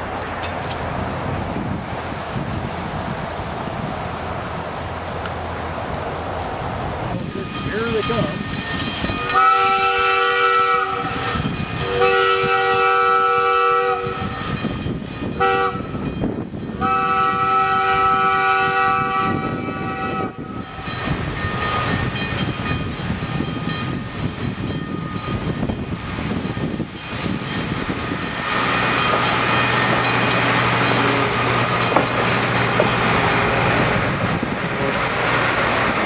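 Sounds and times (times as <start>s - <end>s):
wheels rumbling on rail: 0.0s - 36.0s
train chord horn blasts: 9.2s - 14.4s, 15.2s - 16.0s, 16.8s - 20.9s.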